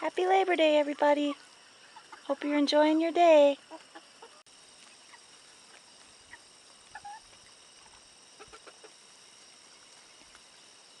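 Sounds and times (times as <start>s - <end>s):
chickens clucking: 1.2s - 9.2s.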